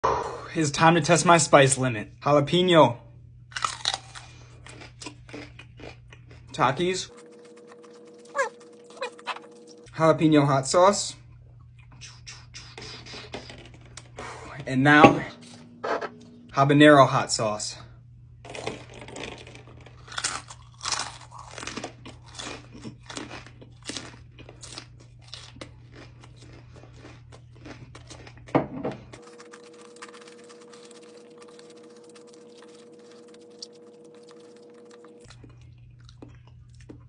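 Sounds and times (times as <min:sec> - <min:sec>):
crunching and chewing: 0:03.5 - 0:10.0, 0:18.5 - 0:37.0
steady hum of even tones: 0:06.6 - 0:18.4.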